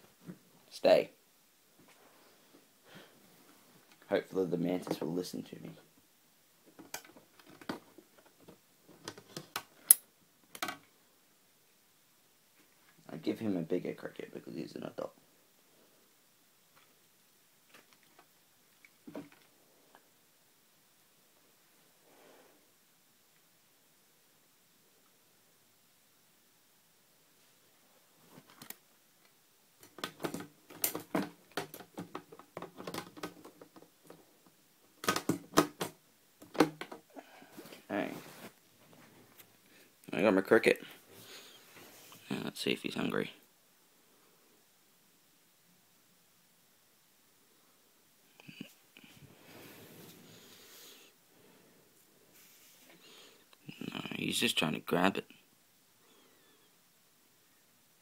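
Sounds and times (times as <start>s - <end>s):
clicks taps and rustles: 6.6s - 10.9s, 28.3s - 37.1s.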